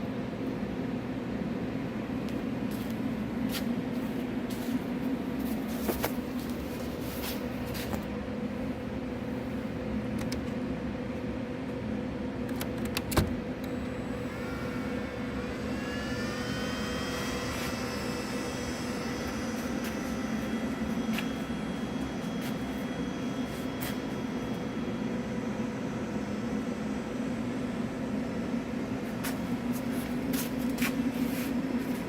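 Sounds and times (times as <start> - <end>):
machine whine: 0.0 - 32.0
belt grinder motor hum: 13.7 - 24.2.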